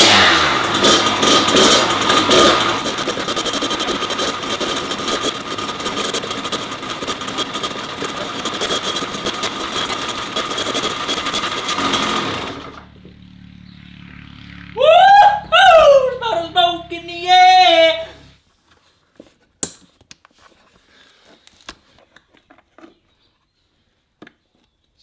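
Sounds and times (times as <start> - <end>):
two-stroke engine idling: 0.0 - 14.8.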